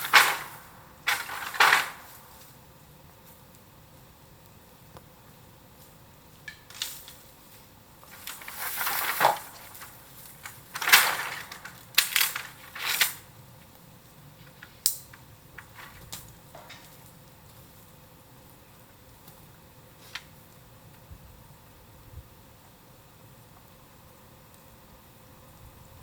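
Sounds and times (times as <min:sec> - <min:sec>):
rustling: 0:00.0 - 0:03.4, 0:05.8 - 0:13.3, 0:14.4 - 0:17.9
bamboo crackling on bonfire: 0:00.0 - 0:25.6.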